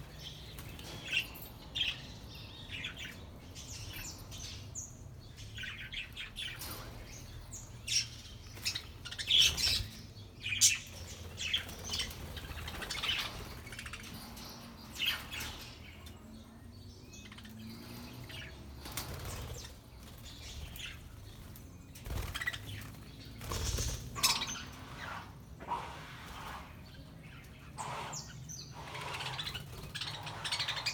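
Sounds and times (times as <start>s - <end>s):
wings flapping: 22.0s - 24.4s
budgerigars chirping: 23.5s - 30.9s.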